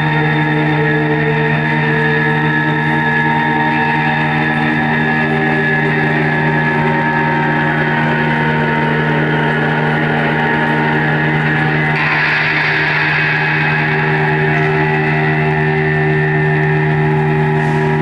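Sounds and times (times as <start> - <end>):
amplified drone music: 0.0 - 18.0
bright hissing layer: 11.9 - 18.0.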